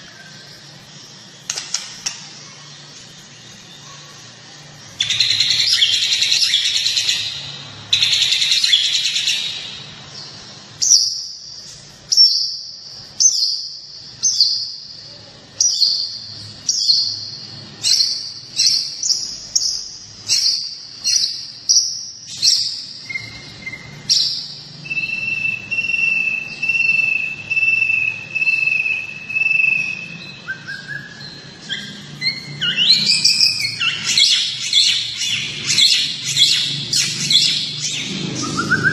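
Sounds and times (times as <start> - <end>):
songbird singing: 0.0 - 38.9.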